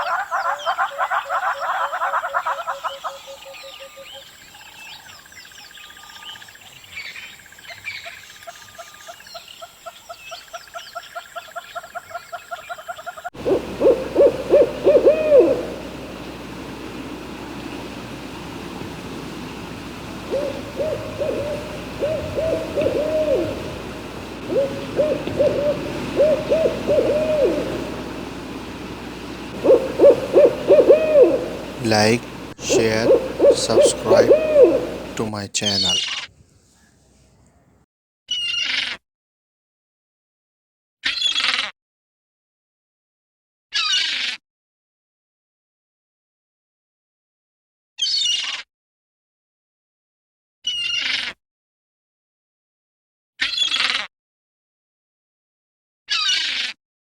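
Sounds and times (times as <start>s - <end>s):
owl hooting: 0.0s - 4.3s, 12.5s - 36.1s
animal calls chorus: 0.0s - 4.7s, 6.4s - 36.0s.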